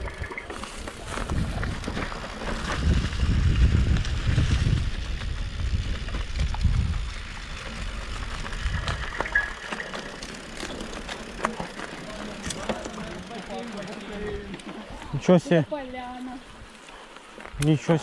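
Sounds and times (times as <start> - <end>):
wind buffeting microphone: 0.0 - 9.7
bicycle riding over dirt track: 0.0 - 18.0.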